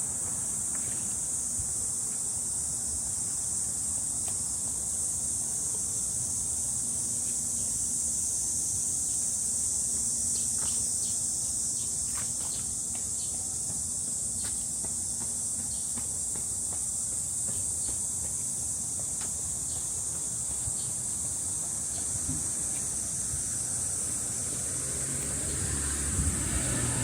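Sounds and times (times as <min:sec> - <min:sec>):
cicadas singing: 0:00.0 - 0:27.0
footsteps on a trail: 0:11.9 - 0:27.0.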